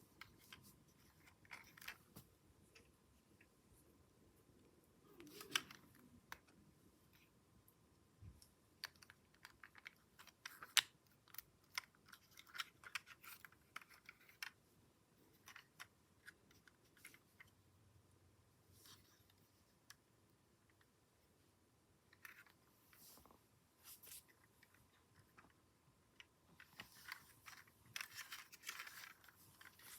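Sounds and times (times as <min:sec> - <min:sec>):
plastic parts clicking: 0:08.4 - 0:14.6.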